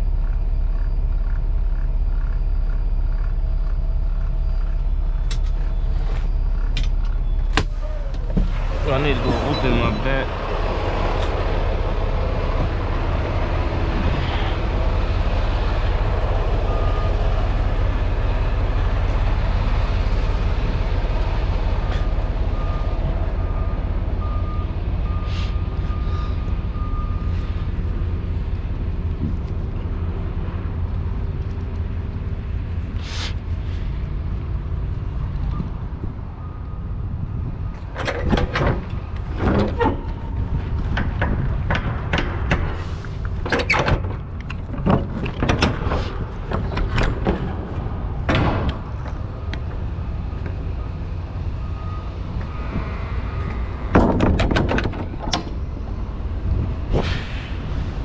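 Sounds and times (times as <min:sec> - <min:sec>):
diesel truck engine rumble: 0:00.0 - 0:58.0
air brake hisses: 0:25.2 - 0:26.4, 0:33.0 - 0:33.4
metallic clanks and rattles: 0:37.8 - 0:50.5, 0:53.8 - 0:57.3.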